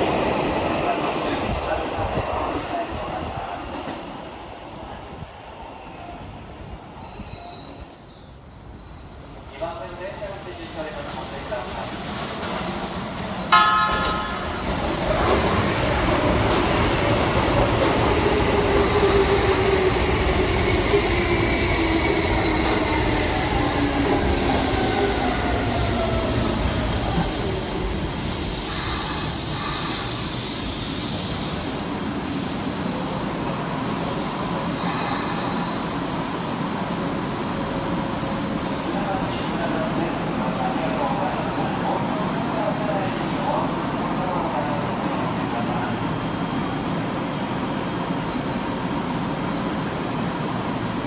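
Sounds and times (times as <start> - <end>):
brake hiss and squeal: 28.3 - 31.9, 33.8 - 36.0.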